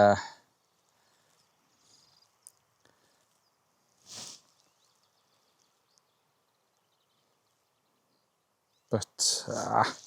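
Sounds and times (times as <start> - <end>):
brief hiss of noise: 4.0 - 4.6.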